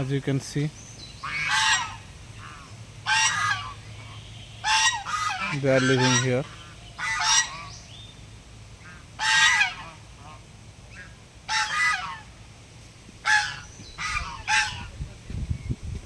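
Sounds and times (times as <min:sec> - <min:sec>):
faint waterfowl calls: 0:00.7 - 0:08.2, 0:08.8 - 0:12.4, 0:13.2 - 0:15.0
waterfowl honking: 0:01.2 - 0:08.0, 0:08.8 - 0:12.4, 0:13.2 - 0:14.9.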